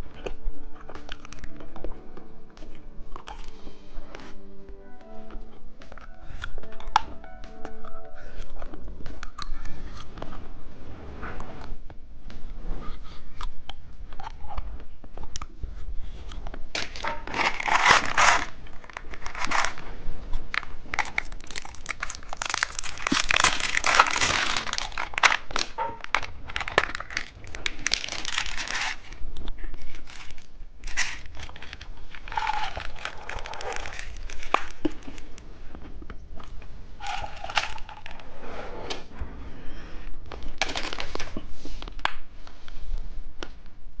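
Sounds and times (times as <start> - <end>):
plastic wrappers crinkling: 16.7 - 35.4, 37.0 - 38.2, 40.5 - 42.1.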